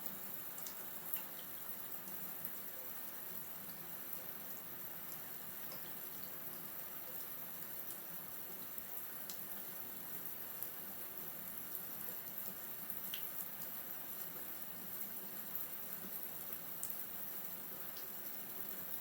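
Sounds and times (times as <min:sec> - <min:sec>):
faint high ticks: 0:00.6 - 0:01.5.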